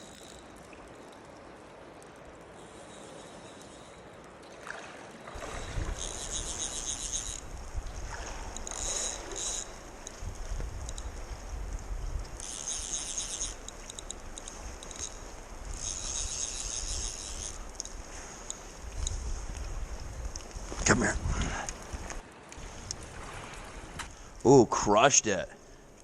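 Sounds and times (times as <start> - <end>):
stream water rushing: 0.0 - 19.2
water splashing: 0.0 - 26.0
wind rumble on microphone: 5.4 - 24.2.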